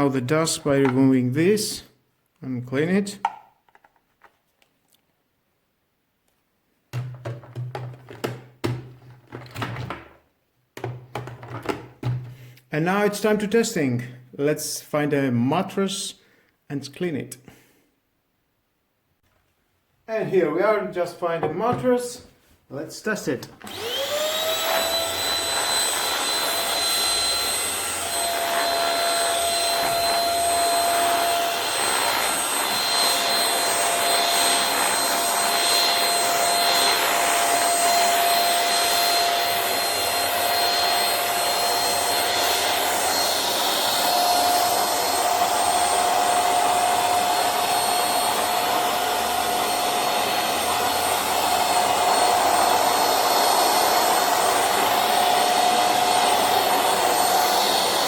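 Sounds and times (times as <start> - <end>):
handheld vacuum cleaner running: 23.6 - 58.0.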